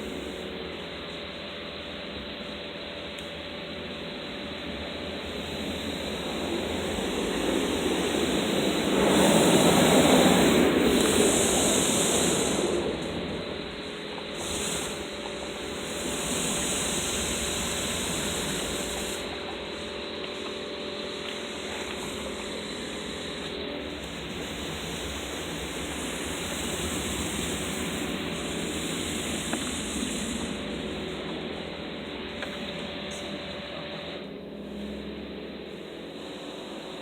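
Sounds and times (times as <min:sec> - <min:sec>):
car wash water spray hiss: 0:00.0 - 0:34.9
high hiss: 0:05.1 - 0:34.2.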